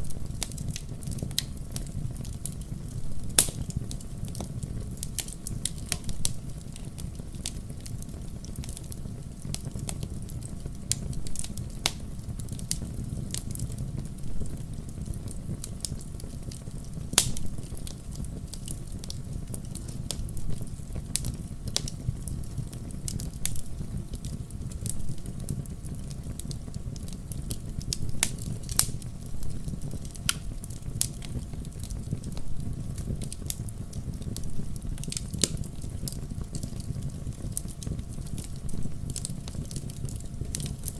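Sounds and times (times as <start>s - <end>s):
campfire crackling and popping: 0.0s - 40.9s
low rumble of flames: 0.0s - 40.9s.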